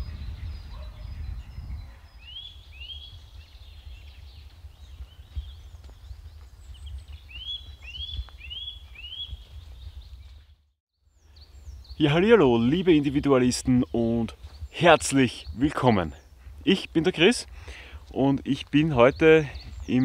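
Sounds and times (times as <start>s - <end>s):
small bird calling: 0.0s - 10.4s.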